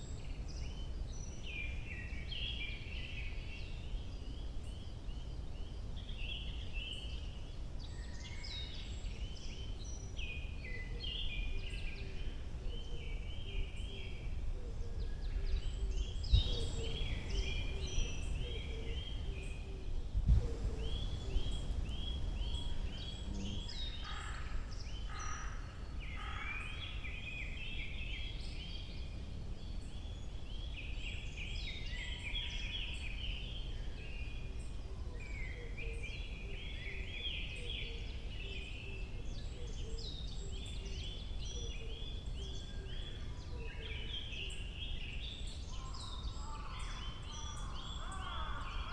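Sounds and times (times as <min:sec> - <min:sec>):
birds chirping and trilling: 0:00.0 - 0:48.9
low rumble: 0:16.2 - 0:23.9.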